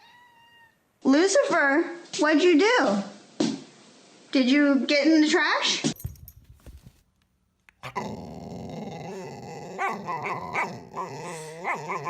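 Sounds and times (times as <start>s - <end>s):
dog growling: 7.8s - 12.0s.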